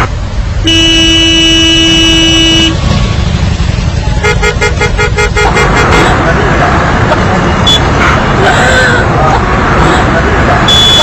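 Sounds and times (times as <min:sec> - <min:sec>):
road noise: 0:00.0 - 0:11.0
vehicle horn blare: 0:00.6 - 0:02.8, 0:04.2 - 0:06.1, 0:10.7 - 0:11.0.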